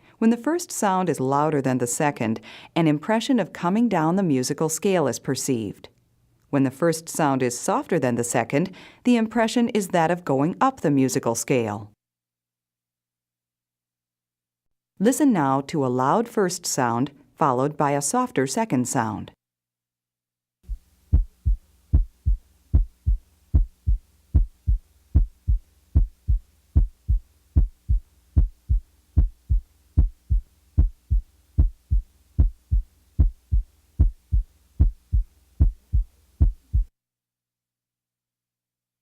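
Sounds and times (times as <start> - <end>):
faint steady hum: 20.7 - 36.9
heartbeat lub-dub: 20.7 - 36.9.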